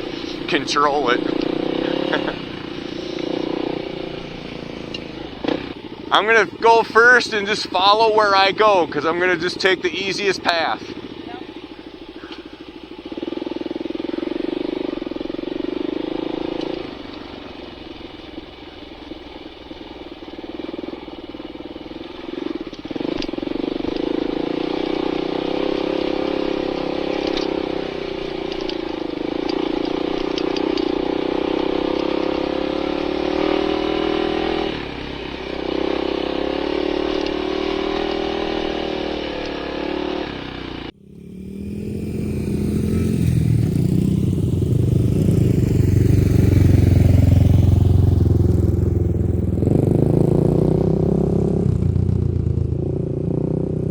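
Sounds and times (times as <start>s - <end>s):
dirt bike engine revving: 0.0s - 53.9s
lower engine sound: 0.0s - 53.9s.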